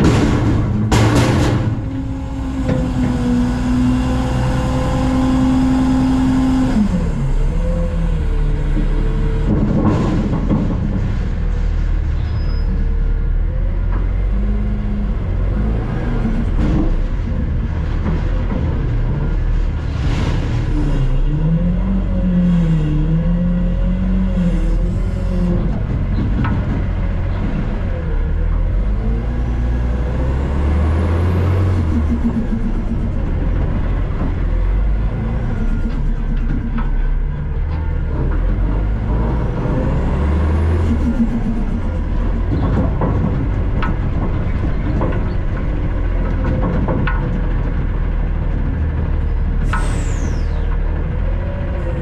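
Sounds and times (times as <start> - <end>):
knocks and rattles: 0.0 - 4.1, 8.6 - 12.1, 16.2 - 21.2, 24.9 - 29.1, 31.5 - 39.4, 40.1 - 49.9
garbage truck diesel engine: 0.0 - 52.0.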